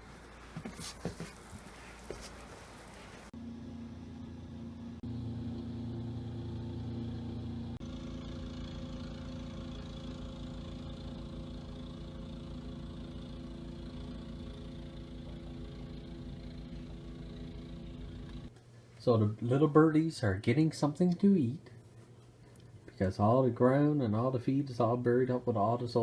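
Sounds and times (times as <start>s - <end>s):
engine idling: 3.4s - 18.5s.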